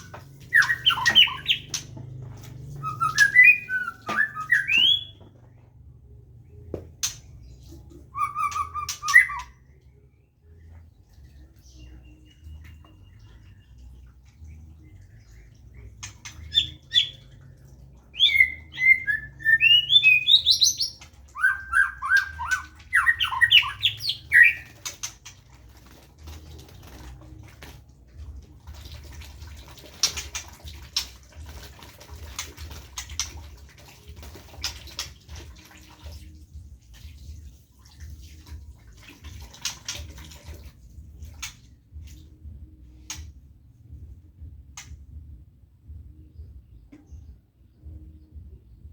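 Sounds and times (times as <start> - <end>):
bird whistling song: 0.0 - 1.9, 2.7 - 5.4, 7.0 - 10.2, 15.2 - 17.3, 18.1 - 25.2.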